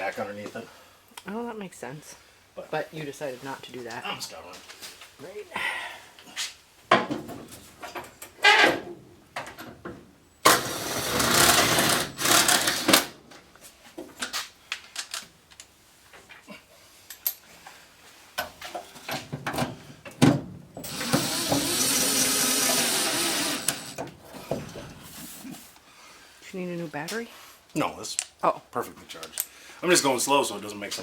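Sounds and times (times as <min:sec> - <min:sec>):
cordless power driver driving bolts: 0:20.8 - 0:24.0.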